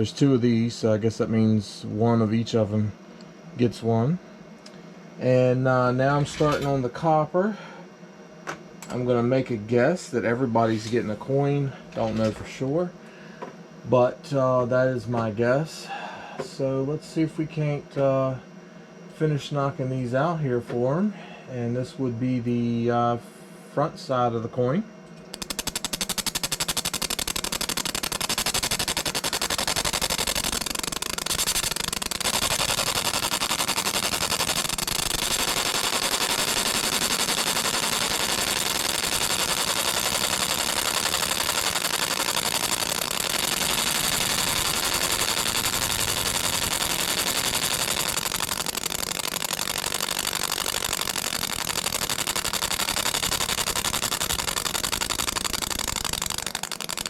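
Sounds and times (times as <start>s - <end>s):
coin-making machine rattling clicks: 25.4s - 57.0s.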